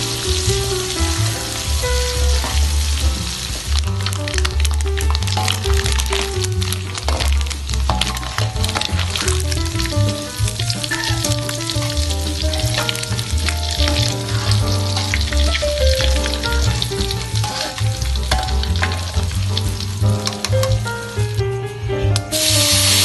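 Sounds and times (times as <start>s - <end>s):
background music: 0.0s - 23.0s
hot oil sizzling and crackling: 0.0s - 23.0s
metal skimmer stirring: 3.8s - 21.6s.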